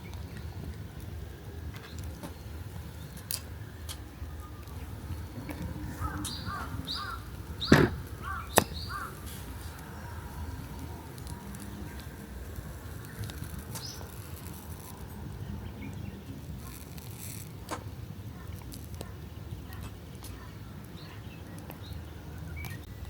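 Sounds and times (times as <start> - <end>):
low background rumble: 0.0 - 23.0
bird chirping: 4.2 - 16.8.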